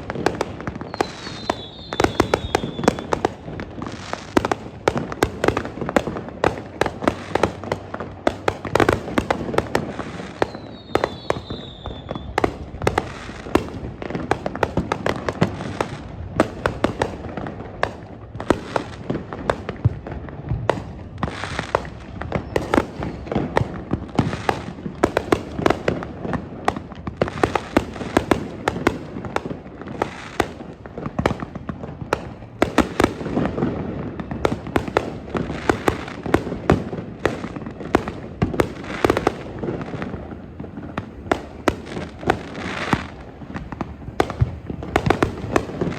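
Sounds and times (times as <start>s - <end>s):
falling firework whistle: 0.0s - 3.5s, 10.1s - 13.1s, 21.8s - 23.7s
fireworks bangs and crackling: 0.0s - 45.9s.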